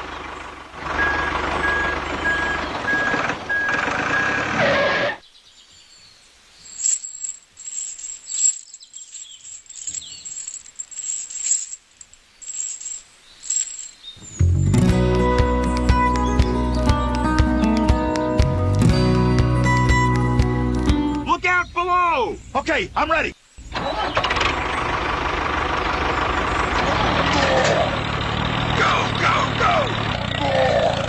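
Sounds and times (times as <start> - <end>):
model tractor motor humming: 23.7 - 31.0.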